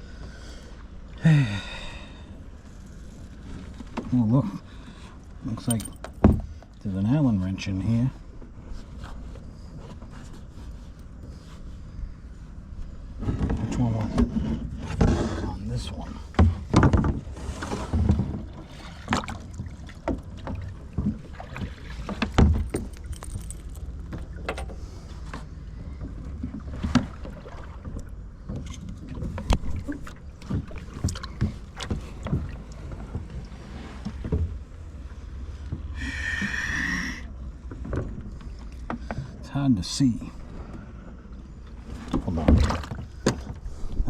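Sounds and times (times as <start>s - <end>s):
water sloshing: 8.7s - 36.6s, 40.3s - 44.0s
paddle knocking against kayak hull: 16.3s - 23.0s, 24.1s - 33.4s.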